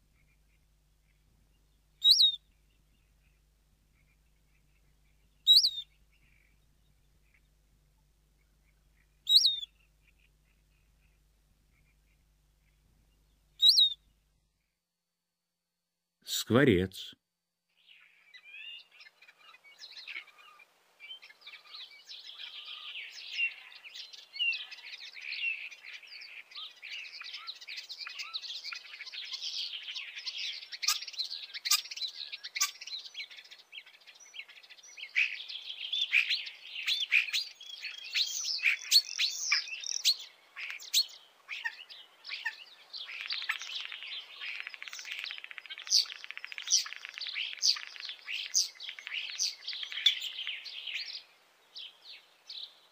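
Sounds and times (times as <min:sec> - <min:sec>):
starling singing: 0:02.0 - 0:02.4, 0:05.5 - 0:05.9, 0:09.3 - 0:09.7, 0:13.6 - 0:14.0.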